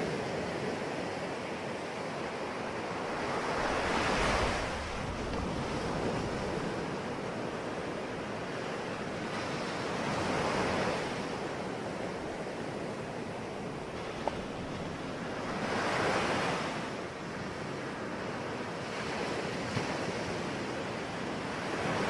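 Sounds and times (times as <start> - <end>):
ocean surf rushing: 0.0 - 18.2.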